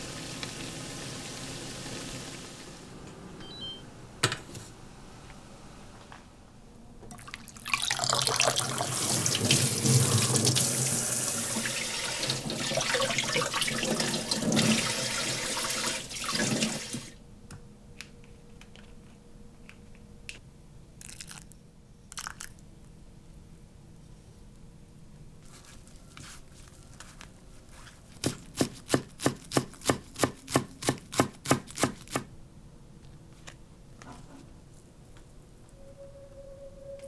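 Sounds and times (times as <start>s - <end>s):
tap water running into sink: 7.1s - 17.1s.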